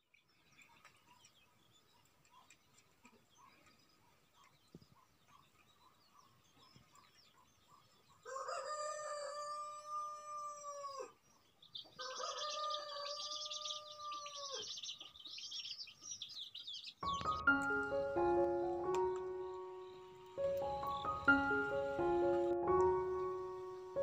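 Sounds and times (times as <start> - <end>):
small birds chirping: 0.0 - 9.9, 10.6 - 24.0
rooster crowing: 8.3 - 11.1, 12.0 - 14.7.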